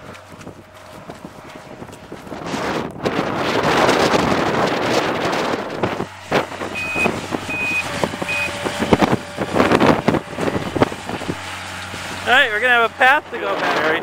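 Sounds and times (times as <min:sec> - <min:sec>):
low engine hum: 0:00.0 - 0:14.0
wind buffeting microphone: 0:00.0 - 0:14.0
truck backup alarm beeping: 0:06.2 - 0:09.4.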